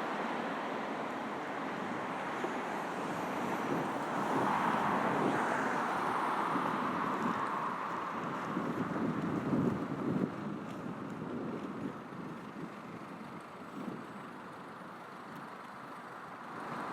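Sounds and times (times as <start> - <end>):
road traffic passing: 0.0 - 8.8, 14.2 - 16.9.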